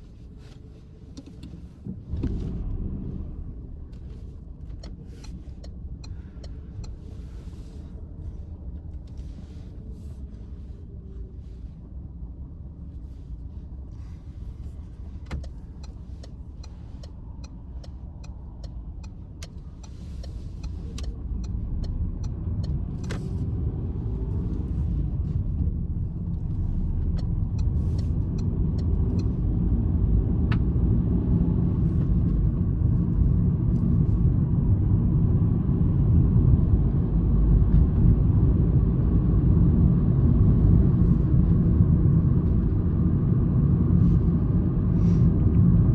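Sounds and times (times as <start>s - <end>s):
road noise inside car: 0.0s - 45.9s
car engine accelerating: 2.0s - 4.3s.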